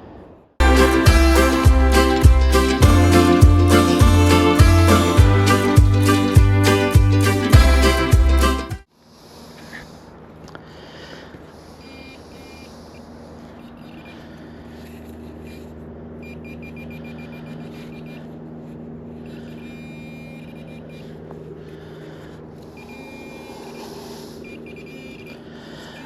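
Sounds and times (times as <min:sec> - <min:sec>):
steady low hum: 0:00.6 - 0:26.0
metal detector beeps: 0:11.8 - 0:12.9, 0:13.8 - 0:18.4, 0:19.2 - 0:21.2, 0:22.7 - 0:26.0.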